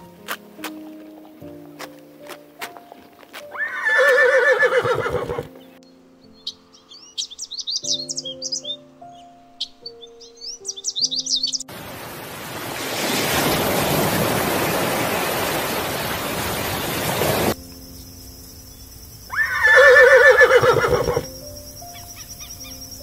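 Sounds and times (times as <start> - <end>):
birds chirping: 0.0 - 11.7, 14.6 - 23.0
horse whinnying: 3.5 - 5.5, 19.3 - 21.3
loud rushing noise: 11.7 - 17.6.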